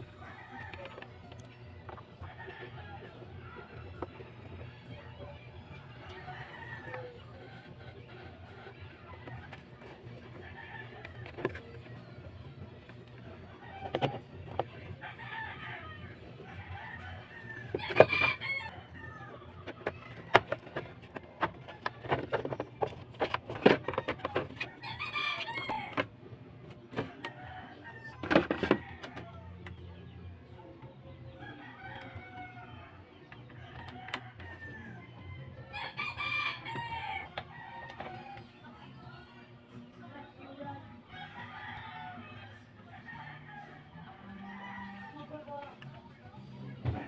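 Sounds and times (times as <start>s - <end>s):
chicken clucking: 13.4s - 26.1s
rooster crowing: 15.0s - 19.4s, 24.6s - 26.0s, 33.7s - 38.4s, 41.2s - 45.3s.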